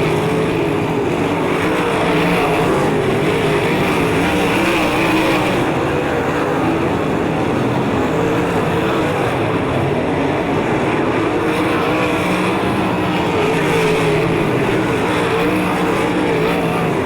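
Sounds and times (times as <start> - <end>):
race car engines running: 0.0 - 17.0.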